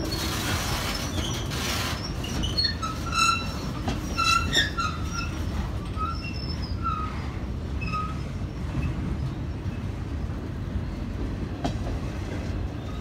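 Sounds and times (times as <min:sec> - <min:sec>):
wheel squeals: 0:00.0 - 0:08.9
railway cars rumbling: 0:00.0 - 0:13.0.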